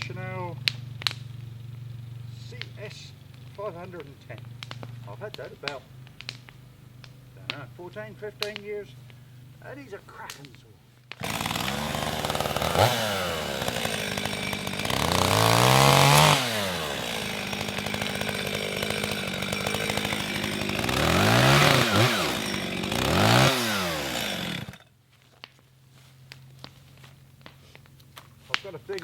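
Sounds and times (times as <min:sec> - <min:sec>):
chainsaw revving: 0:00.0 - 0:09.9, 0:11.1 - 0:24.9.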